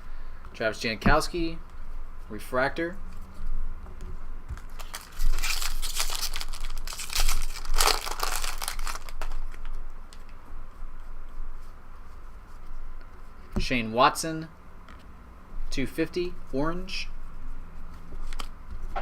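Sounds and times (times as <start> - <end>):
wrapper crinkling and tearing: 4.6 - 9.8.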